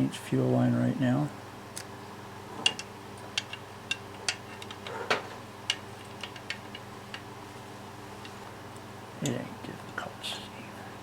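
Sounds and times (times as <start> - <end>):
low steady hum: 0.0 - 11.0
small parts clicking and tapping: 2.6 - 7.3.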